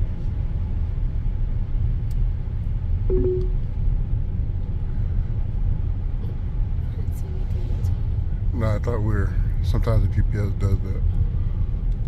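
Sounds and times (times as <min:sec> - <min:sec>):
short electronic beep: 0:03.1 - 0:03.7.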